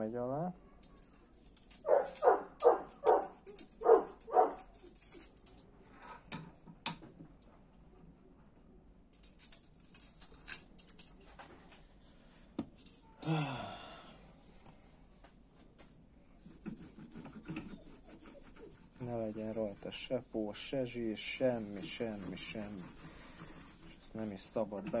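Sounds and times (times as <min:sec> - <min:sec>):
dog barking: 0:01.8 - 0:04.6.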